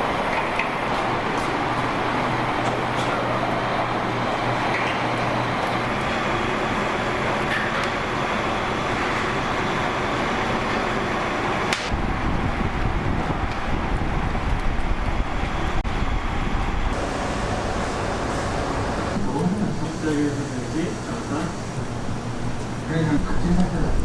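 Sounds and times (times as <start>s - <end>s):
street traffic din: 0.0s - 24.0s
heavy low rumble: 11.8s - 24.0s.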